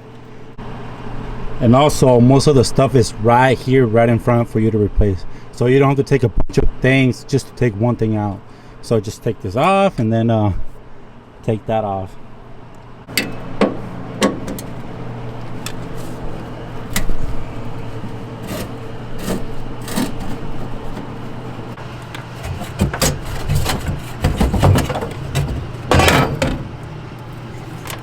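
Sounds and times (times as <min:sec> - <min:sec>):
steady low hum: 0:00.0 - 0:28.0
metal parts clicking and scraping: 0:17.9 - 0:26.8.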